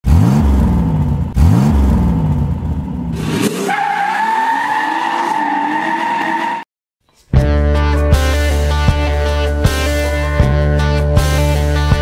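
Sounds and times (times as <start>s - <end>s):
car engine revving: 0.0s - 6.6s.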